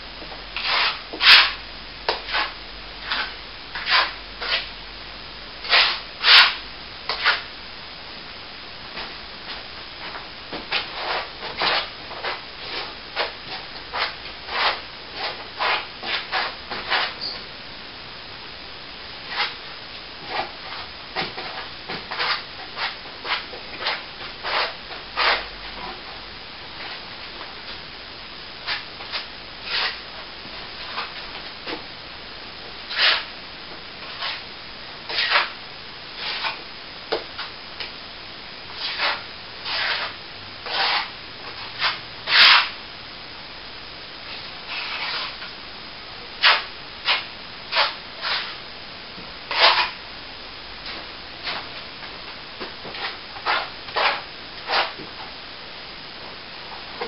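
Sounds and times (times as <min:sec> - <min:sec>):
hand tool rubbing plaster wall: 0:00.6 - 0:01.6, 0:38.8 - 0:41.1, 0:44.7 - 0:45.4, 0:46.4 - 0:48.6, 0:53.0 - 0:55.0.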